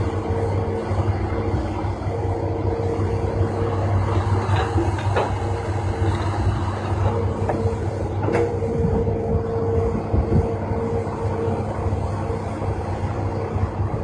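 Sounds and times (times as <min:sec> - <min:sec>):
heavy diesel machinery running: 0:00.0 - 0:14.0.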